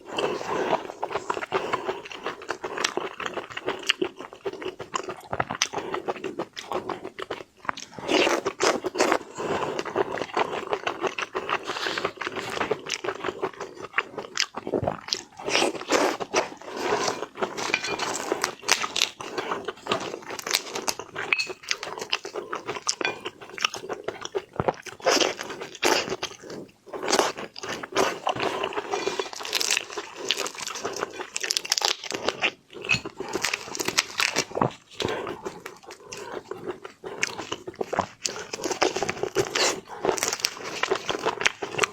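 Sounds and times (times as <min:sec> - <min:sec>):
wet chewing: 0:00.0 - 0:41.9
crunching bites: 0:10.7 - 0:41.9.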